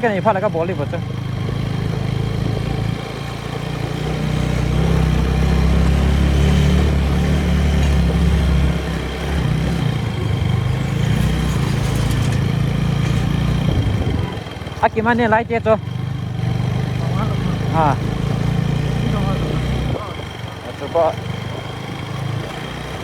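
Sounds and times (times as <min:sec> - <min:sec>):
motorcycle engine rumble: 0:00.0 - 0:23.0
wind rumble: 0:04.7 - 0:14.8.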